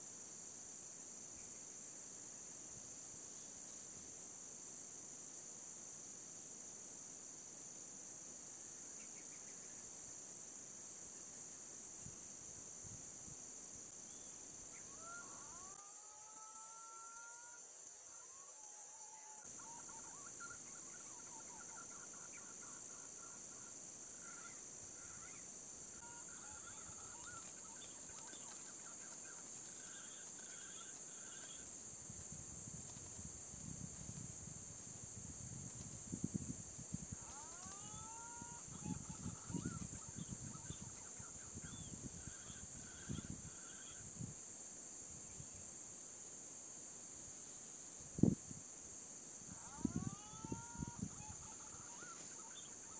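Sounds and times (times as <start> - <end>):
high insect drone: 0.0 - 52.9.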